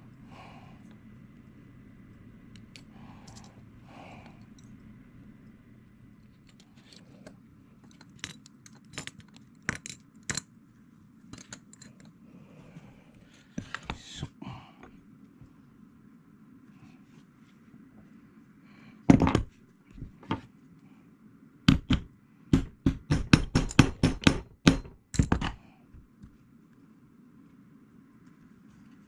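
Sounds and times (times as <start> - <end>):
tools clicking and clinking: 2.5 - 3.6, 6.3 - 10.5, 11.3 - 12.2.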